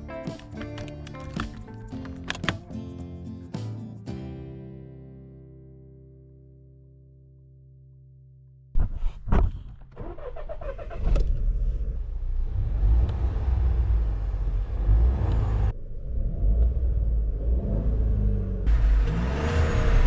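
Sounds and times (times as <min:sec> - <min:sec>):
low road rumble: 0:00.0 - 0:03.3, 0:08.7 - 0:20.0
car engine running: 0:10.9 - 0:20.0.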